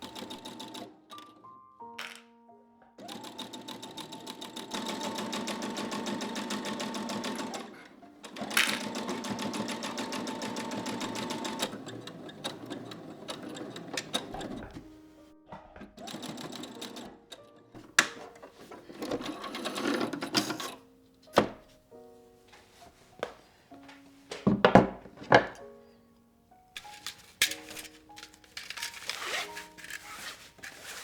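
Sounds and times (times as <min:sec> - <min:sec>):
sewing machine stitching: 0:00.0 - 0:01.4, 0:03.0 - 0:15.0, 0:16.0 - 0:17.2, 0:17.8 - 0:20.8, 0:26.8 - 0:31.0.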